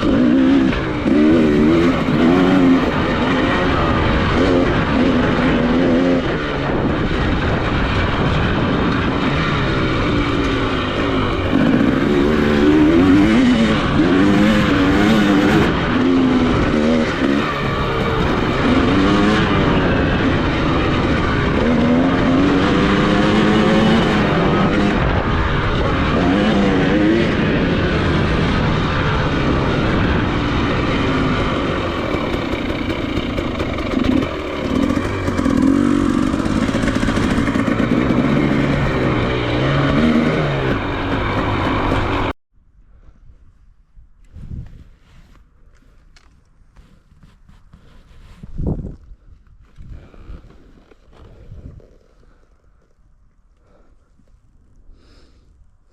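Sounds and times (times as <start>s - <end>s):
dirt bike engine revving: 0.0s - 42.4s
wind and track noise: 0.0s - 55.9s.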